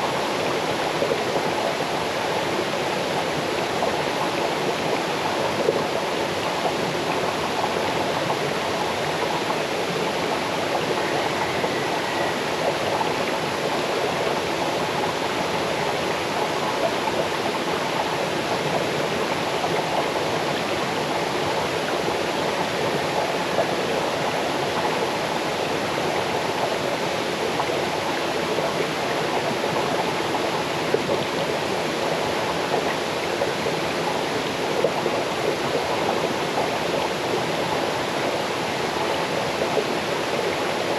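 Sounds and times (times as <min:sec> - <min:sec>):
stream babbling: 0:00.0 - 0:40.9.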